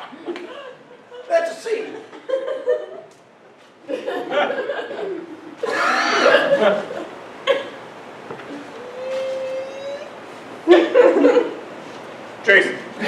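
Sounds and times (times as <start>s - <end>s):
audience laughing: 3.9s - 7.8s, 10.7s - 11.6s.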